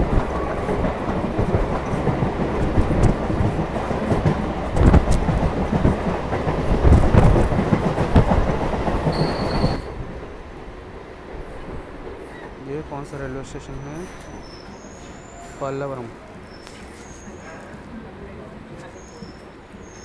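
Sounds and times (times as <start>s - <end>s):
electric train rumbling: 0.0s - 20.0s
high squeal: 9.1s - 10.0s.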